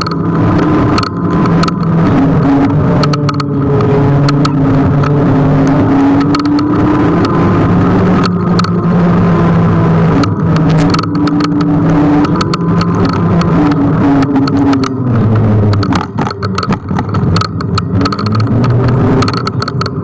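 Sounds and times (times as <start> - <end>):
electric scooter motor hum: 0.0 - 20.0
road noise rushing: 0.0 - 20.0
short clicks: 10.1 - 20.0.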